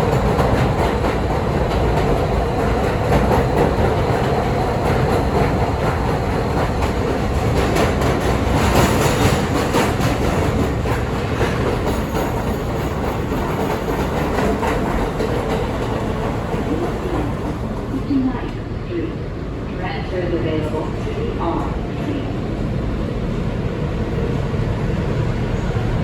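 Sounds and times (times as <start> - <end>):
wheels rumbling on rails: 0.0 - 18.6.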